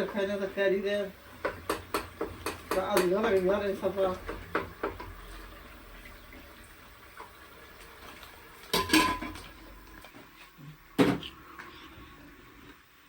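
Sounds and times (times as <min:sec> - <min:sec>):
dishes and utensils clattering: 0:08.7 - 0:09.6.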